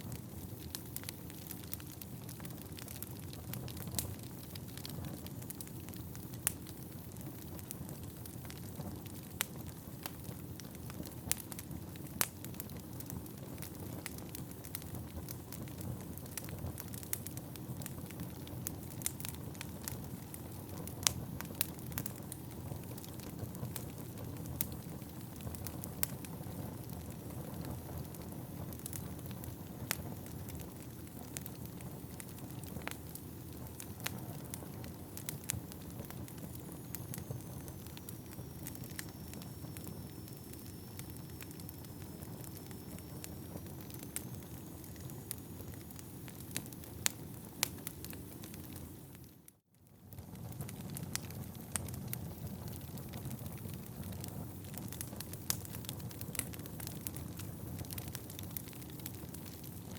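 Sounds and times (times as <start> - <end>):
flames rushing in fireplace: 0.0 - 49.1, 50.1 - 59.9
logs crackling and popping: 0.0 - 59.9.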